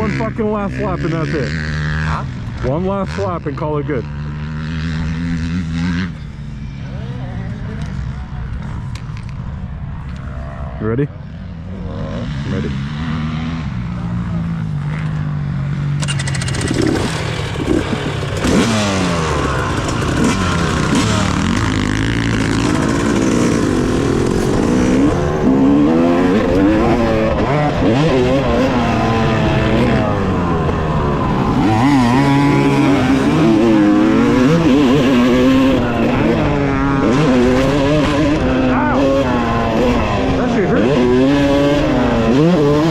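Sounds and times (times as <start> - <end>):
dirt bike engine revving: 0.0 - 8.8, 10.2 - 42.9.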